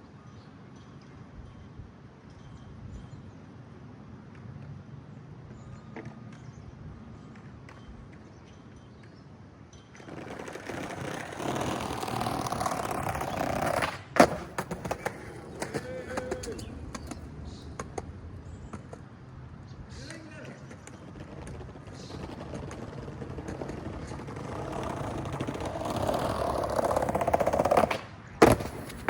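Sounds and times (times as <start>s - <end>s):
skateboard wheels rolling on pavement: 4.2s - 29.0s
skateboard clacking: 9.9s - 19.2s, 20.0s - 29.0s
skateboard clattering: 10.0s - 19.1s, 20.0s - 29.0s.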